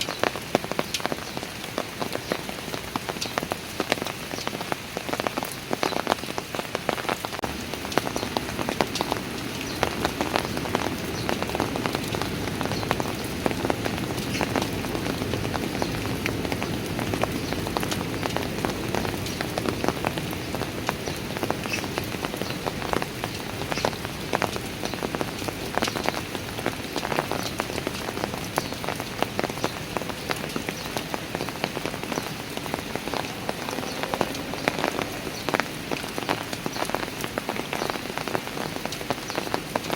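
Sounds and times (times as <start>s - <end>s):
rain on stone paving: 0.0s - 39.9s.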